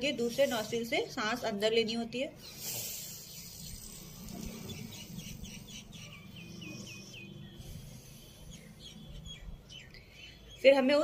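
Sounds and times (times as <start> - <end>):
small bird chirping: 2.4 - 10.9.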